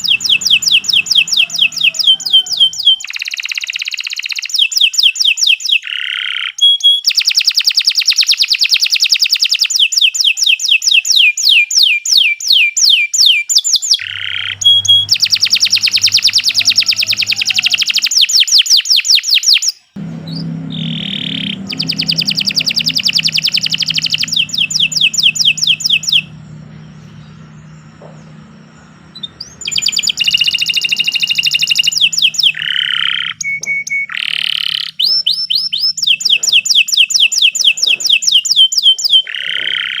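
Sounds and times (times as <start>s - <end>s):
low steady hum: 0.0s - 3.0s, 14.0s - 18.1s, 20.0s - 36.0s
canary singing trills: 0.0s - 7.6s, 13.8s - 40.0s.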